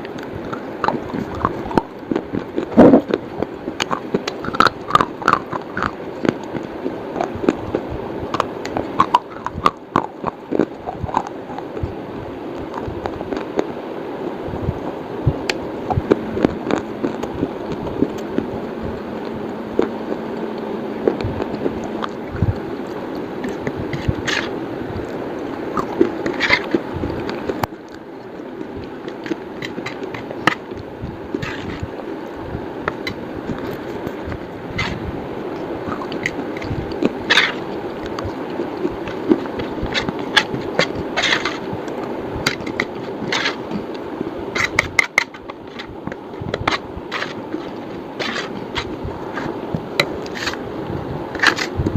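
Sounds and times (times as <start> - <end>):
steady background noise: 0.0 - 51.9
slate pencil crunching: 21.2 - 32.0, 35.6 - 50.7.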